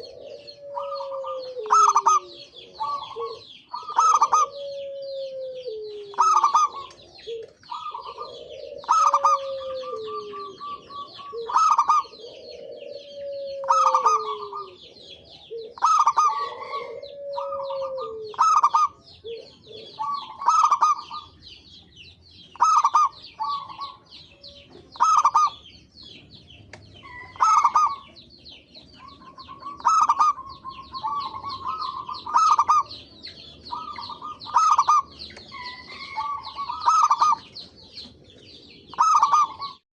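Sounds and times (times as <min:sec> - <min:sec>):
doves cooing: 0:00.0 - 0:39.8
high twittering chirps: 0:18.4 - 0:39.8.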